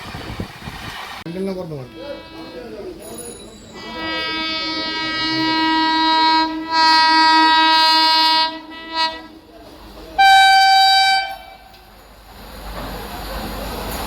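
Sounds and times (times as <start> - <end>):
locomotive horn blasts: 1.8 - 3.0, 3.7 - 9.5, 10.2 - 11.8.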